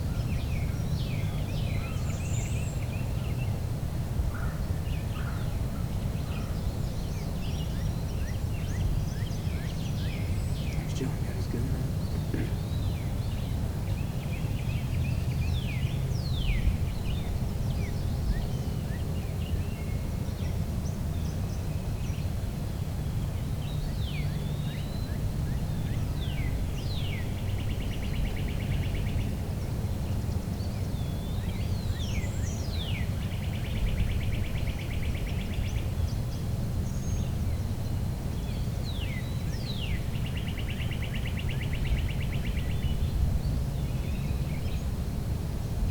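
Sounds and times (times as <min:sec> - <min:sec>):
steady low rumble: 0:10.7 - 0:13.0.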